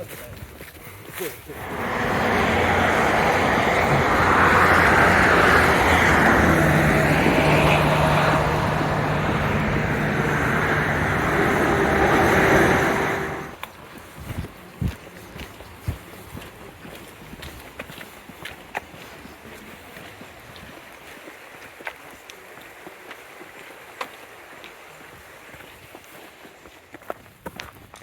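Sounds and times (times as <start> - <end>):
road traffic passing: 1.5 - 13.9.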